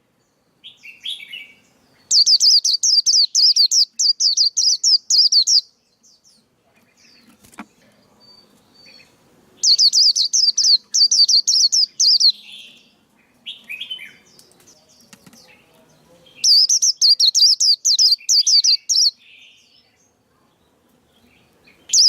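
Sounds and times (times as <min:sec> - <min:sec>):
bird twittering song: 0:00.2 - 0:22.0
bird low chirps: 0:08.3 - 0:12.8.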